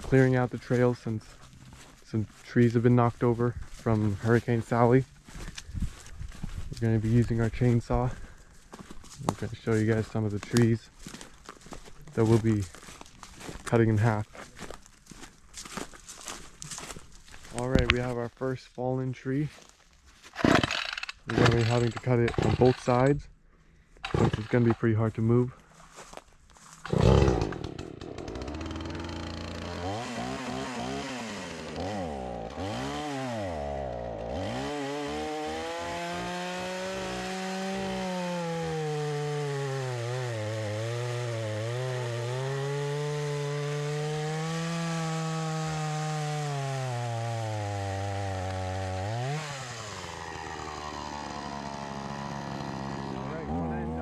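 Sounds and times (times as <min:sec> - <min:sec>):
chainsaw cutting through tree trunk: 0:20.4 - 0:23.1, 0:24.0 - 0:24.8, 0:26.8 - 0:54.0.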